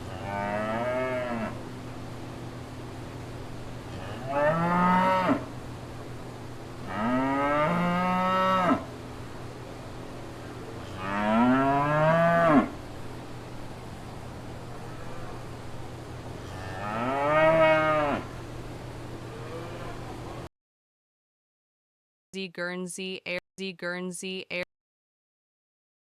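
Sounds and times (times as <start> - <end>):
cow mooing: 0.0 - 1.6, 3.9 - 5.5, 6.9 - 8.9, 10.9 - 12.8, 16.5 - 18.3, 19.4 - 20.0.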